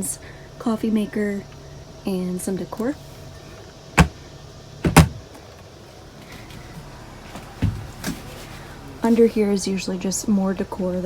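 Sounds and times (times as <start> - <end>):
cabinet door knocking shut: 4.8 - 5.2.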